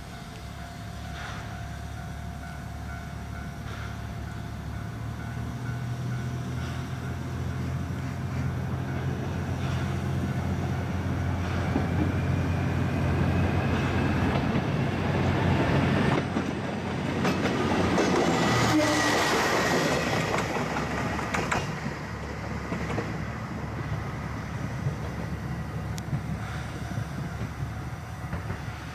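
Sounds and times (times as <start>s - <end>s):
train cars rolling: 0.0s - 28.9s
wheels clicking over rail joints: 16.0s - 18.9s, 19.5s - 24.1s.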